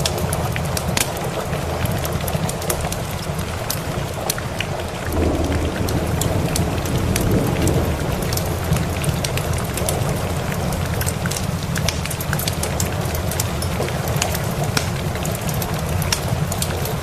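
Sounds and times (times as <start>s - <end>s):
steady rain: 0.0s - 17.0s
wood fire crackling: 0.0s - 17.0s
low rumble of thunder: 3.0s - 13.4s.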